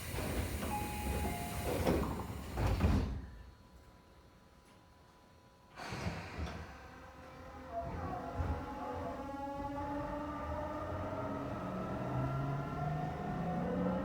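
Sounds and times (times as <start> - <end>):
train doors sliding shut: 0.0 - 3.4.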